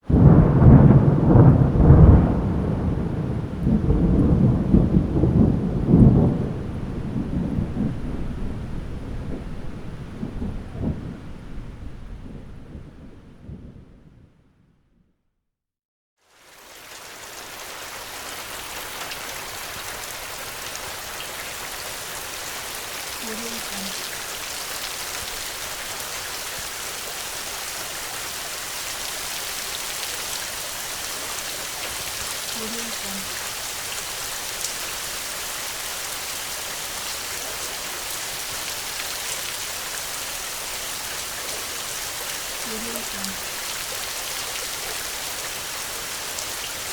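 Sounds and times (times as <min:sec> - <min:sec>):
steady rain falling: 0:00.0 - 0:14.2, 0:16.2 - 0:46.9
raindrop ticks: 0:23.2 - 0:24.2, 0:42.3 - 0:44.0.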